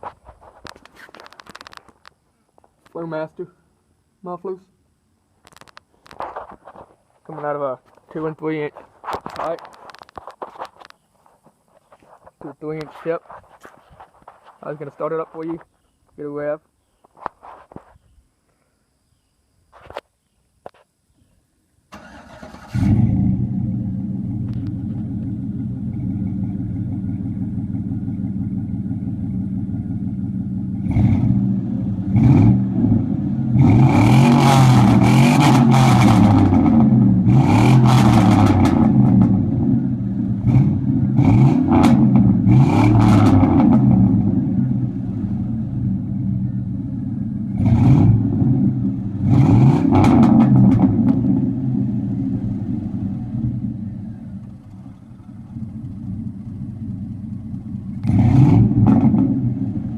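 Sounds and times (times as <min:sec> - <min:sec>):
truck engine idling and revving: 0:22.0 - 0:59.9.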